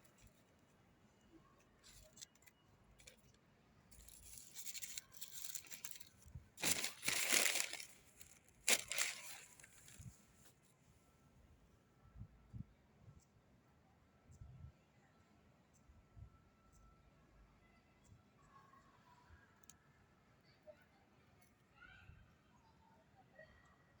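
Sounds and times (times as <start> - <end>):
paper packaging crinkling and tearing: 1.8 - 10.2.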